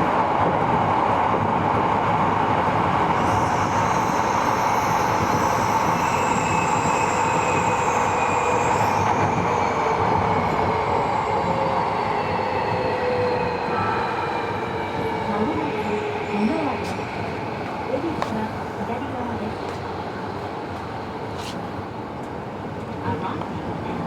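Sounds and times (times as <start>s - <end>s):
train wheel and rail noise: 0.0s - 24.0s.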